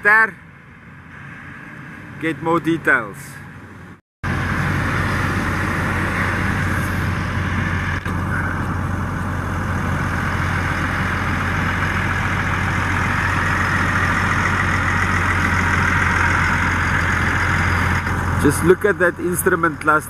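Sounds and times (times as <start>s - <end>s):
engine idling hum: 3.3s - 20.0s
even rushing noise: 4.2s - 18.8s.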